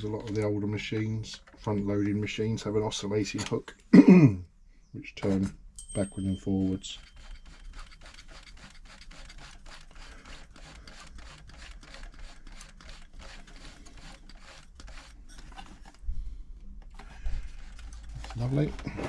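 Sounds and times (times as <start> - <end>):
tools clicking on sewing machine: 0.0 - 2.4, 6.9 - 15.9.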